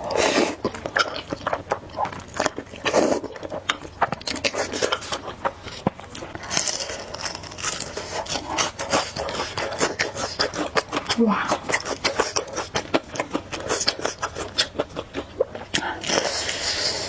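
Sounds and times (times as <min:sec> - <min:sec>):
wet chewing with mouth clicks: 0:00.0 - 0:17.0
breathing: 0:15.8 - 0:17.0.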